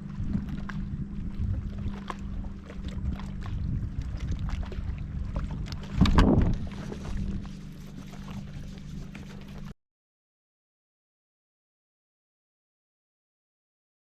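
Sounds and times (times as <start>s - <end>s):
steady low hum: 0.0s - 9.7s
wind noise on microphone: 0.0s - 9.7s.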